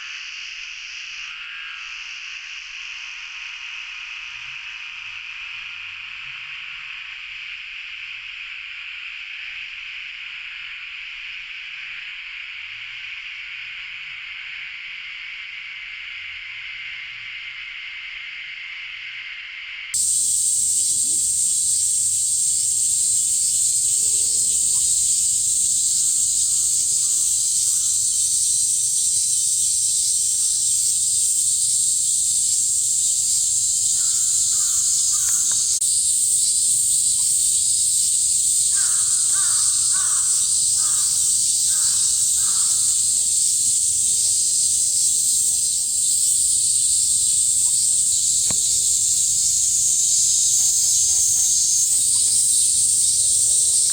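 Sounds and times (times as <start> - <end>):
cicadas droning: 0.0 - 11.0, 20.0 - 53.9
crows cawing: 21.2 - 28.4, 33.6 - 35.8, 38.7 - 43.2.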